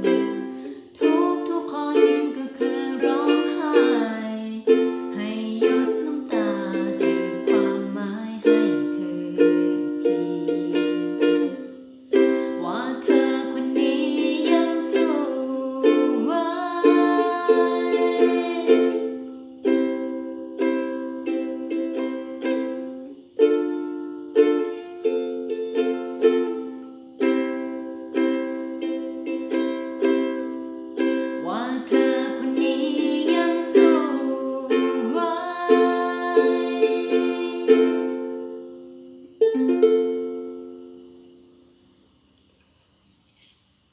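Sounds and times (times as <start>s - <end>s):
ukulele strumming chords: 0.0s - 41.4s.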